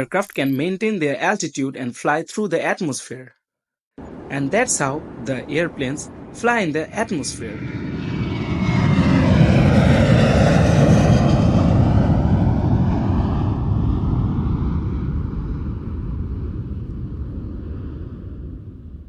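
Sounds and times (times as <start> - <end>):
airplane engine roar: 4.0 - 19.0.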